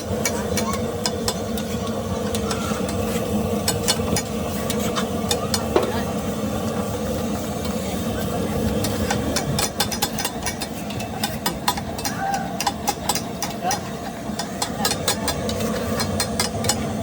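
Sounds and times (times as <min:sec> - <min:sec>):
metal spatula scraping griddle: 0:00.2 - 0:05.2.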